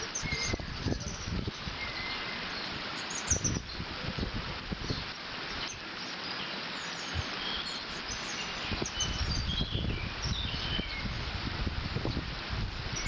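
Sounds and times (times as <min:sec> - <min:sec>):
wind buffeting microphone: 0:00.0 - 0:05.6, 0:07.1 - 0:13.0
small birds chirping: 0:00.0 - 0:13.0
water rushing through dam: 0:00.0 - 0:13.0.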